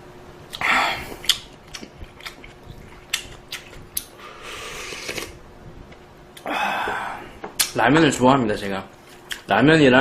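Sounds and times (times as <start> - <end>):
mouth clicks and smacks: 0.5 - 4.1, 7.6 - 7.8
slurping noodles: 4.4 - 5.4.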